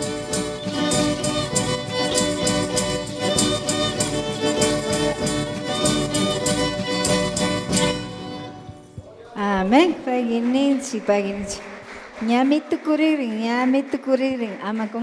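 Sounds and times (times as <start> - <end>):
violin: 0.0 - 10.0
percussive beat: 0.0 - 10.1.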